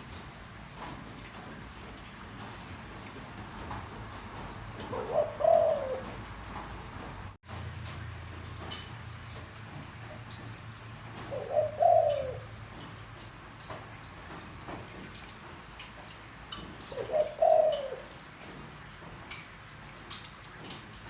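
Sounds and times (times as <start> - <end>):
dove cooing: 3.6 - 7.1, 11.1 - 12.9, 16.7 - 18.6.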